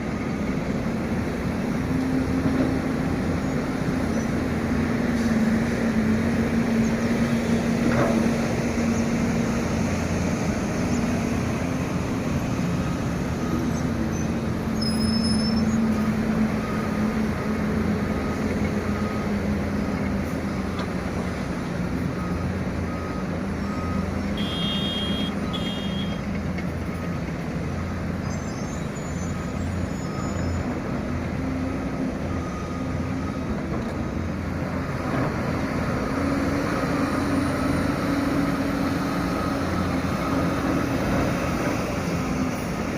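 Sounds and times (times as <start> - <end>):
faint reversing alarm beeping: 11.8 - 20.6, 22.0 - 26.3, 29.0 - 34.2, 37.1 - 42.8.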